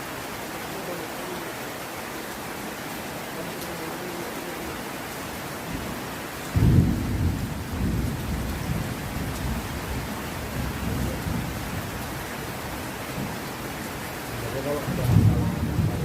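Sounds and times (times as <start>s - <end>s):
heavy rain falling: 0.0s - 16.0s
thunderclap and rumbling: 5.7s - 12.1s, 14.8s - 16.0s.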